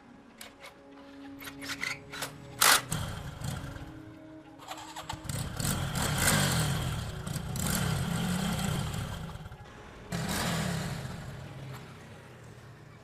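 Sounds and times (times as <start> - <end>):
motorcycle engine revving: 2.6 - 3.9, 4.6 - 12.6.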